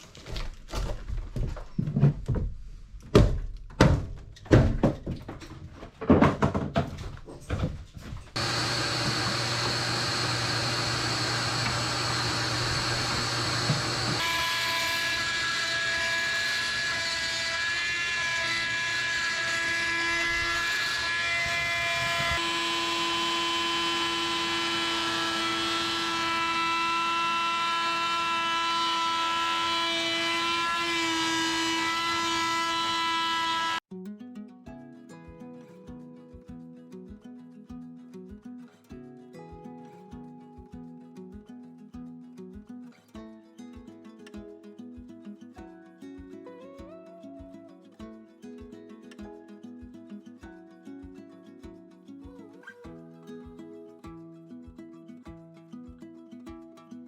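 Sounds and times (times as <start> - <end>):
demolition knocks and thuds: 0.2 - 8.3.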